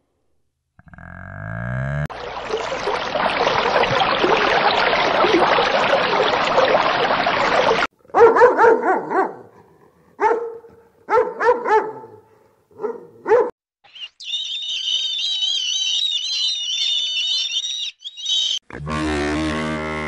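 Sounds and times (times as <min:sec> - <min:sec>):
dog yipping: 0:08.2 - 0:09.4, 0:12.8 - 0:13.5.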